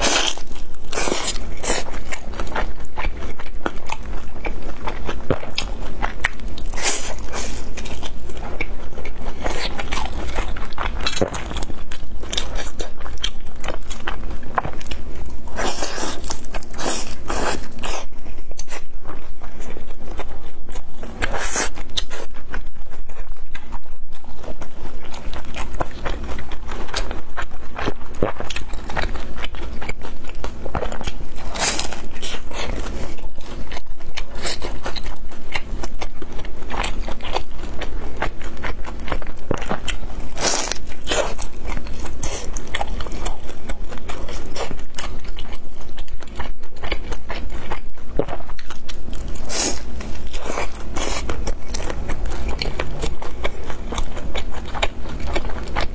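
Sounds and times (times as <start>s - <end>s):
crunchy chewing: 0.0s - 55.9s.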